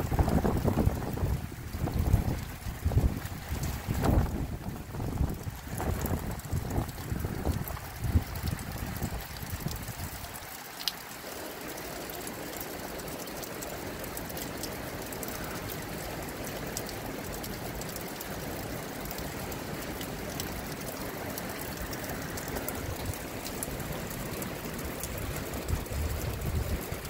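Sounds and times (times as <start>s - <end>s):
wind buffeting microphone: 0.0s - 10.3s, 21.8s - 27.0s
rain drops ticking: 0.0s - 27.0s
steady rain: 0.0s - 27.0s.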